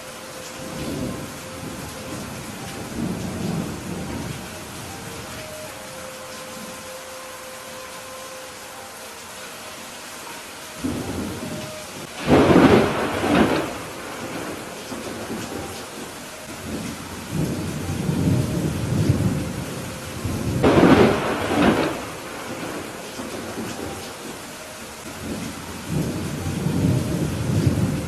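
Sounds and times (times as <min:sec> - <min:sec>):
steady rain: 0:00.0 - 0:28.0
low thunder rumbling: 0:00.6 - 0:05.4, 0:10.8 - 0:28.0
thunder peals: 0:10.8 - 0:24.4.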